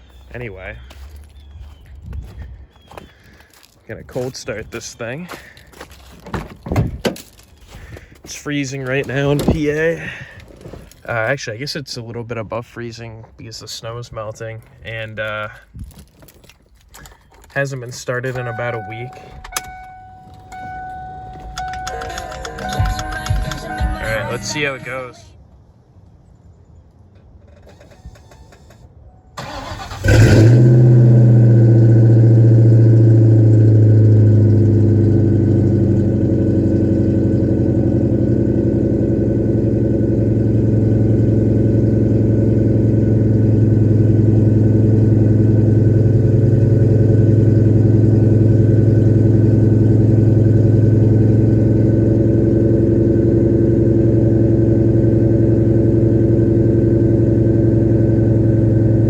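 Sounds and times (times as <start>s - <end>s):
car engine starting and idling: 2.8s - 11.6s, 16.2s - 25.2s, 27.2s - 59.0s
starter motor cranking: 29.4s - 30.6s.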